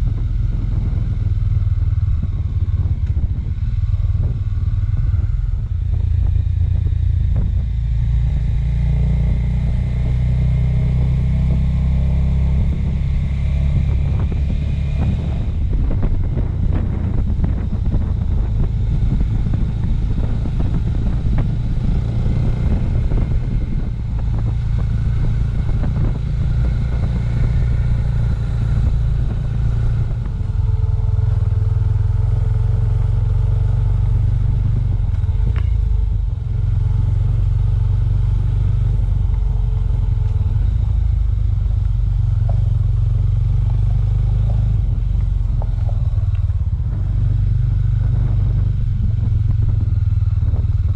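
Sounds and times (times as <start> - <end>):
motorcycle engine running: 0.0 - 50.9
road rattle: 0.0 - 50.9.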